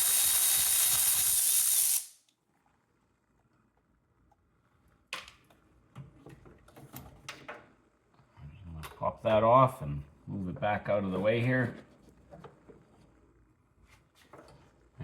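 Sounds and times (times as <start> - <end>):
power ratchet whirring: 0.0 - 2.1.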